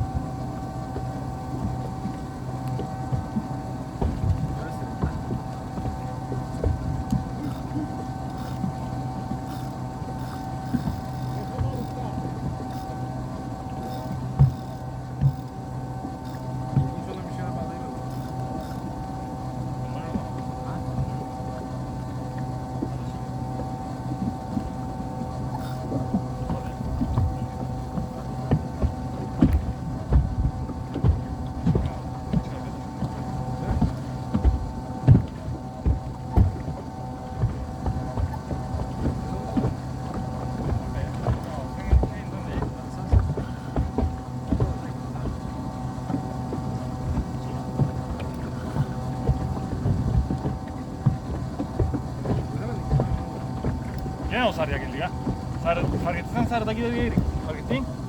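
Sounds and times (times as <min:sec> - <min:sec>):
motorboat engine humming: 0:00.0 - 0:58.0
wind buffeting microphone: 0:26.0 - 0:58.0.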